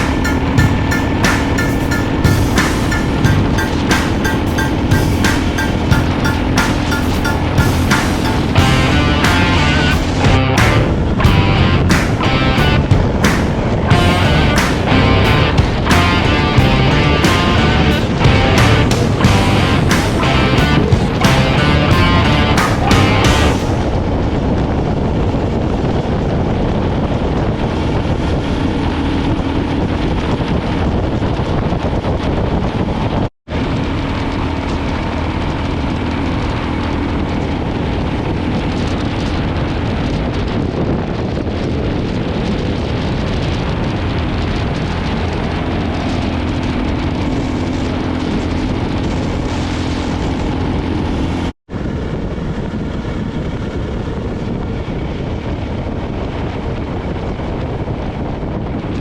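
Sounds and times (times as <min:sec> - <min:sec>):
motorcycle engine cruising: 0:00.0 - 0:33.0
wind buffeting microphone: 0:00.0 - 0:59.0.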